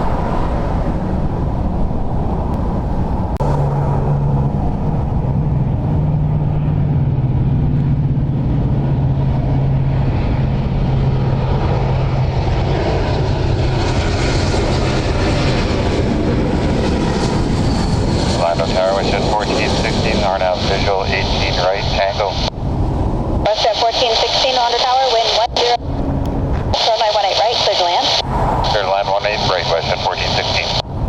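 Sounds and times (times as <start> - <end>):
jet engine drone: 0.0 - 31.0.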